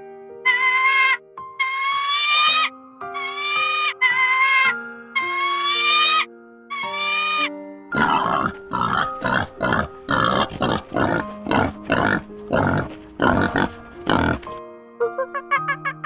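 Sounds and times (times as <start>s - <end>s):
background music with held notes: 0.0s - 16.0s
high-pitched animal call: 0.5s - 14.6s
animal grunting: 7.9s - 14.6s.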